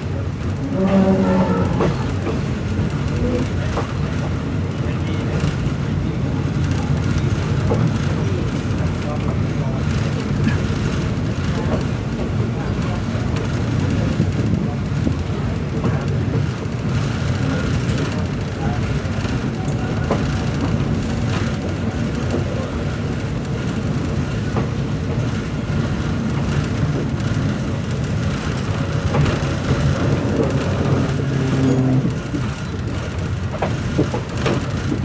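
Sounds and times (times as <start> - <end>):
train carriage rumbling on rails: 0.0 - 35.0.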